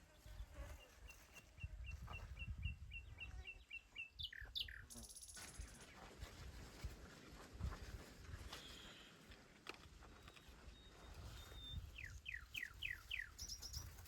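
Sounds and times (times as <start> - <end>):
small songbird chirping: 0.2 - 5.7, 10.3 - 14.0.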